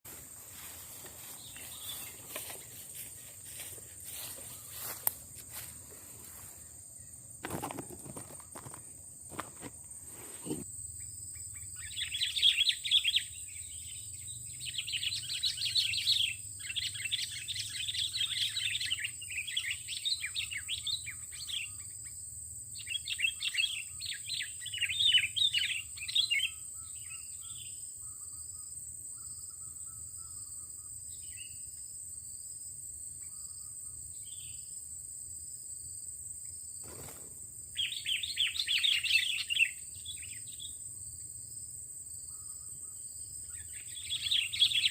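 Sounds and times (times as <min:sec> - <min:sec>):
high insect buzz: 0:00.1 - 0:18.4, 0:36.5 - 0:44.9
bird chattering song: 0:11.5 - 0:21.9, 0:37.8 - 0:40.8, 0:42.3 - 0:44.9.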